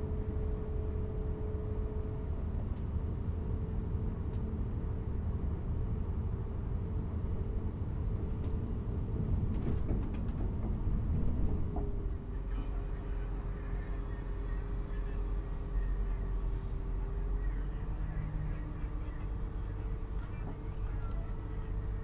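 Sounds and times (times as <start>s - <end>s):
diesel train low rumble: 0.0s - 22.0s
light clicks and rattles: 8.4s - 12.2s.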